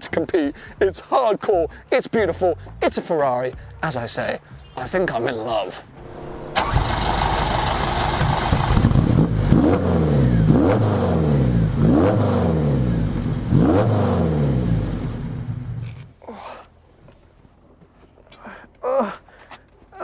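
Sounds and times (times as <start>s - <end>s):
car engine revving: 6.0s - 16.0s.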